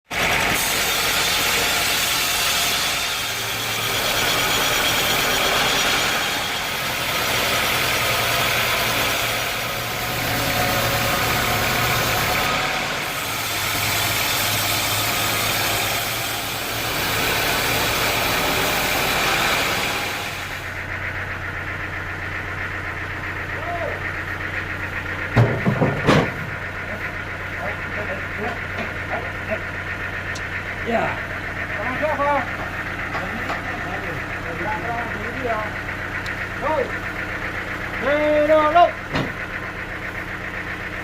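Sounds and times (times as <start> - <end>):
machinery humming and hissing: 0.2 - 21.4.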